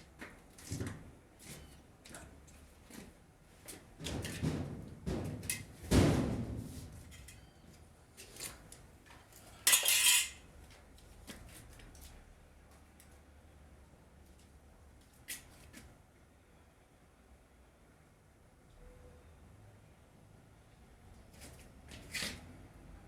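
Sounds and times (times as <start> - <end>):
knocks of hard objects handled: 4.0 - 7.3.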